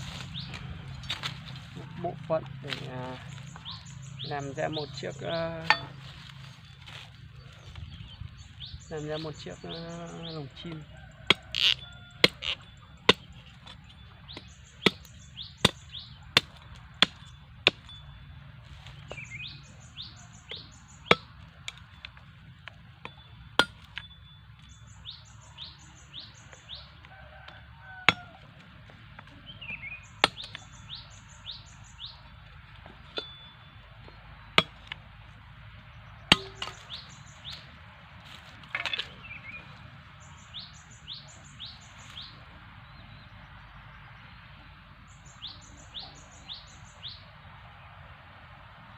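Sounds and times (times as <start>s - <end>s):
bird chirping: 0.0s - 22.3s, 23.0s - 28.3s, 29.3s - 35.0s, 35.8s - 37.8s, 38.8s - 47.5s
bamboo sticks knocking: 5.6s - 6.1s, 36.3s - 37.7s.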